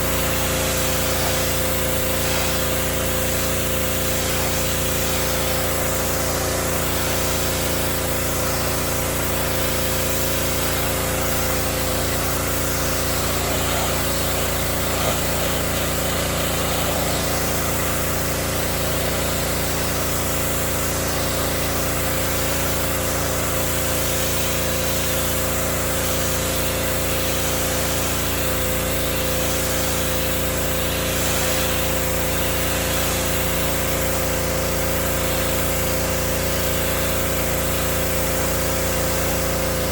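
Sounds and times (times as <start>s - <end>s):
pressure washer engine running: 0.0s - 39.9s
water jet spraying on wood: 0.0s - 39.9s.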